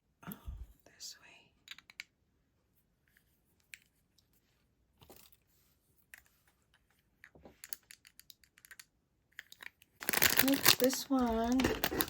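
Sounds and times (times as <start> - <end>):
soft paper rustle: 10.0 - 12.0.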